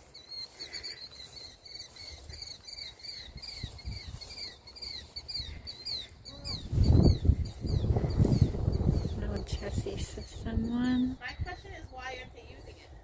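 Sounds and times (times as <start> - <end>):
small bird chirping: 0.0 - 12.7
low rumbling on microphone: 6.2 - 11.4.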